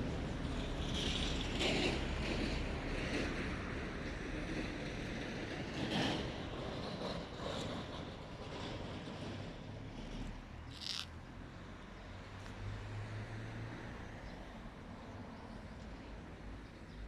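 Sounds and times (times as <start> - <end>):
motorcycle engine and road rumble: 0.0 - 17.0.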